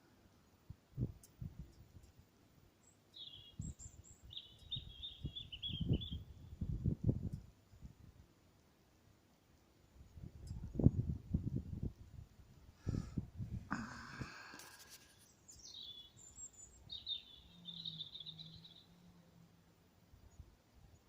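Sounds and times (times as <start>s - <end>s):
songbird singing: 0.4s - 7.8s, 13.7s - 21.0s
short hiss: 14.2s - 15.3s.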